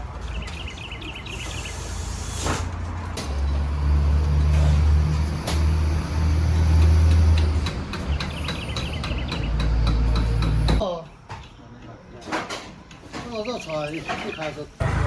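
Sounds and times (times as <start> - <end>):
vehicle engine humming: 14.8 - 15.0.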